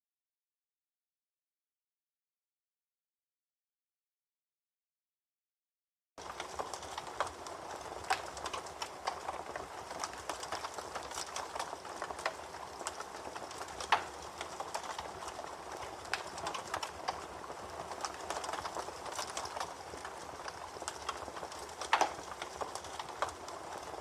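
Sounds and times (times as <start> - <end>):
campfire crackling: 6.2 - 24.0.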